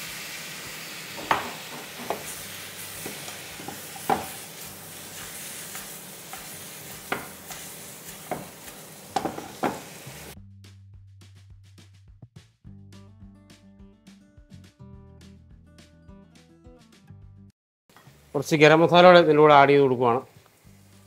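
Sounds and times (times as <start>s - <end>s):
chicken sizzling in hot oil: 0.0s - 10.4s, 19.6s - 21.0s
spatula knocking against pan: 1.2s - 2.3s, 3.0s - 4.4s, 7.0s - 7.6s, 8.2s - 8.6s, 9.2s - 9.8s.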